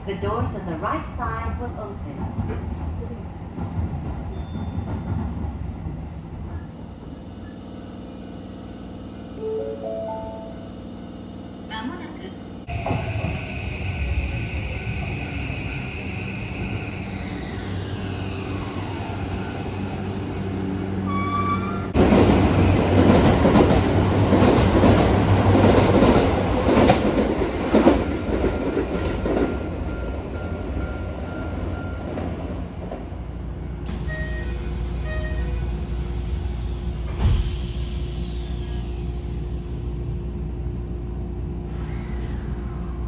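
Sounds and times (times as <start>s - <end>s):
train traction motor whine: 6.1s - 26.9s, 33.8s - 41.9s.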